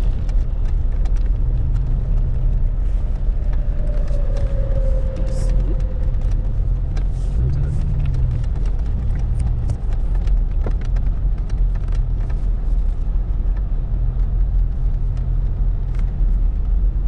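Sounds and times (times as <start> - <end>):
engine and tyre rumble: 0.0 - 17.0
vehicle knocks and rattles: 5.8 - 16.8.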